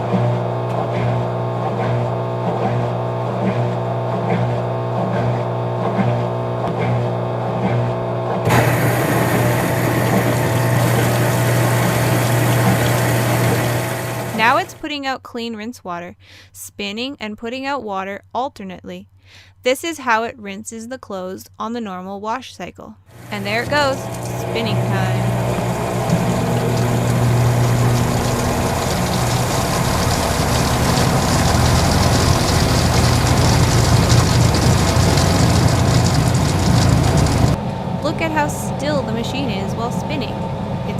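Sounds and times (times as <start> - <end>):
drain pump humming: 6.2 - 14.8, 23.1 - 40.9
water gushing through drain: 8.5 - 14.8, 23.1 - 37.6.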